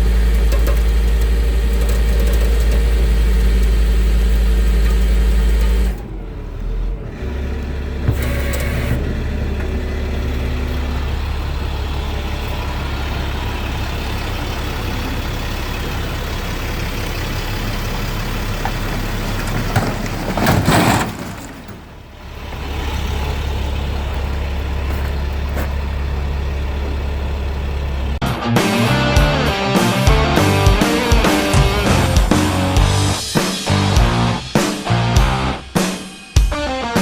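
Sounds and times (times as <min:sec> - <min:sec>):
forklift engine humming: 0:00.0 - 0:35.7.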